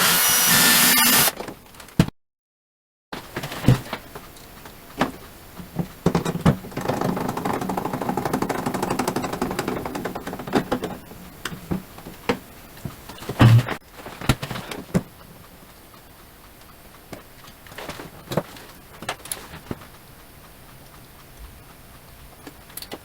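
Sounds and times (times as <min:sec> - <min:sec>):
continuous rattling: 0:05.1 - 0:13.8.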